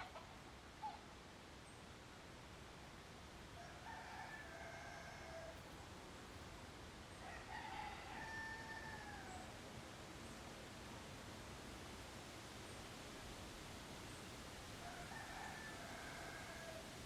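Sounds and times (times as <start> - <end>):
rooster crowing faintly: 3.5 - 5.8, 7.2 - 9.6, 14.8 - 17.0.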